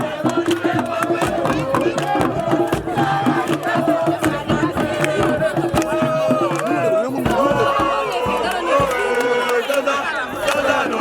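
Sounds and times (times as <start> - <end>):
group of voices chanting: 0.0 - 11.0
rhythmic claps or drum beats: 0.0 - 11.0.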